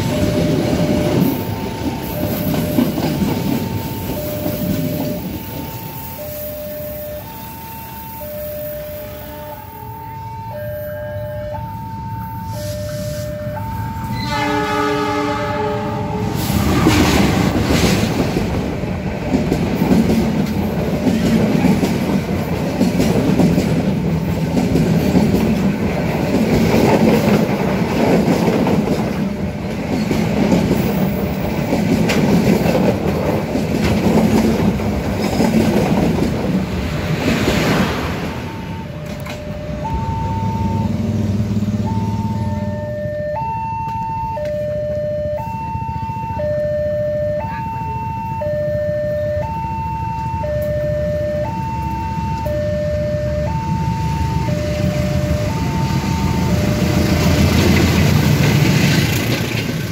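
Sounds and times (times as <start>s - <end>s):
crossing alarm alternating tones: 0.0s - 29.6s, 37.7s - 57.9s
passing train rumbling: 0.0s - 59.9s
locomotive horn: 8.8s - 17.6s
wheels clattering over rail joints: 56.7s - 59.9s.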